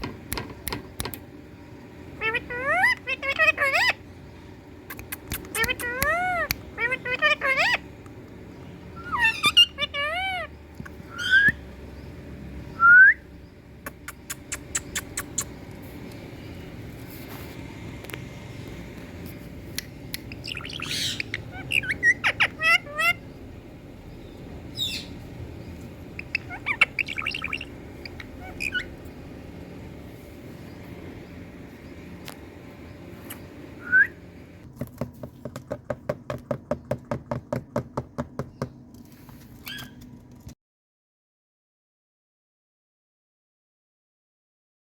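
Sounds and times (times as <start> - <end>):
parakeet whistling: 9.0 - 11.7, 12.7 - 13.3, 20.2 - 23.3, 24.7 - 25.2, 26.1 - 29.0, 33.3 - 34.3
parrot rising whistle: 11.1 - 11.6, 12.8 - 13.3, 33.8 - 34.2
short sharp clicking chirps: 13.8 - 16.2.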